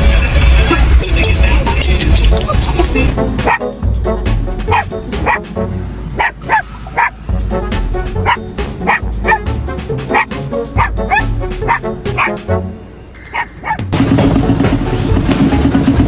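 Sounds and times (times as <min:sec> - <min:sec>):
background music: 0:00.0 - 0:16.0
dog yipping: 0:03.4 - 0:03.7, 0:04.7 - 0:05.4, 0:06.2 - 0:07.2, 0:08.2 - 0:09.5, 0:10.1 - 0:12.4, 0:13.3 - 0:13.8.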